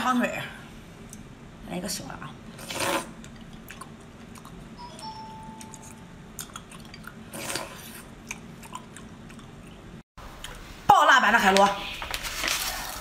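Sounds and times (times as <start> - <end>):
person chewing seafood: 2.7 - 4.7, 5.6 - 10.6
wet mouth clicks: 5.6 - 9.8.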